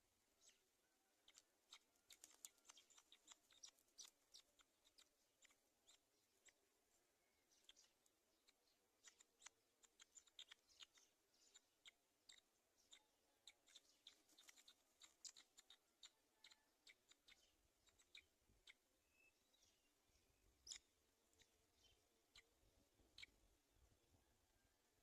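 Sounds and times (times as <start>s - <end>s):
faint clicking and ticking: 0.0s - 19.2s, 20.5s - 24.3s
faint chirp: 0.0s - 25.0s.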